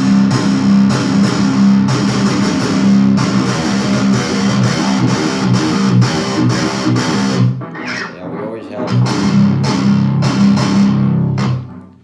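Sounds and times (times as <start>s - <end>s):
electric guitar metal riff: 0.0s - 12.0s.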